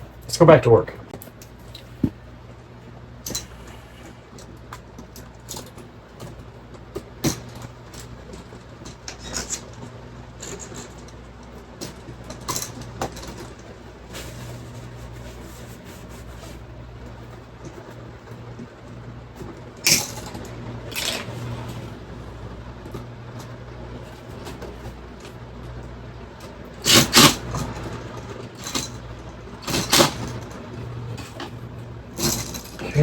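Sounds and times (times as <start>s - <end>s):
steady low hum: 0.0s - 33.0s
hand tools clicking and snipping wire: 19.8s - 21.3s, 26.8s - 29.0s.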